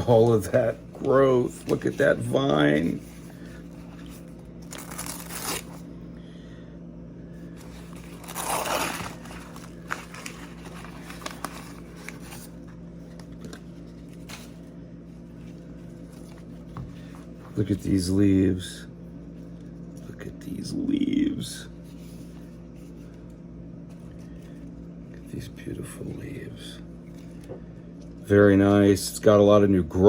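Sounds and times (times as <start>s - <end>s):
steady low hum: 0.0s - 30.0s
plastic packaging crinkling: 3.6s - 5.9s, 7.6s - 16.7s.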